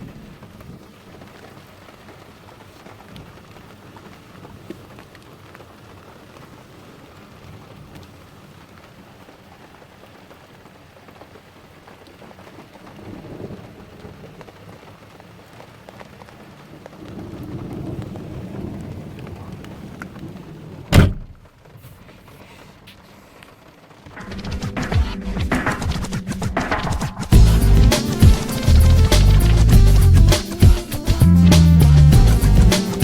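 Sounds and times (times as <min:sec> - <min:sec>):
steady rain hiss: 0:00.0 - 0:33.0
low rumble: 0:24.3 - 0:27.9.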